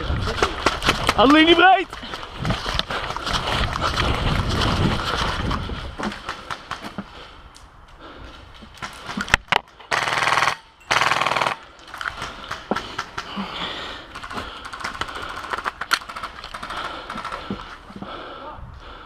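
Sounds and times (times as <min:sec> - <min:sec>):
airsoft rifle full-auto bursts: 0:09.9 - 0:11.6.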